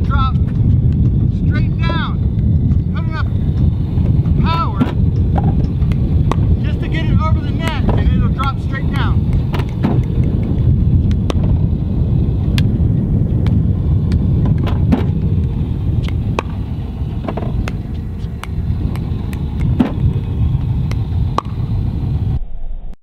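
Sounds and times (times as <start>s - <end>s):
wind buffeting microphone: 0.0s - 22.5s
ball bouncing on court: 4.8s - 6.6s, 7.6s - 11.6s
paddles striking plastic ball: 7.6s - 11.6s.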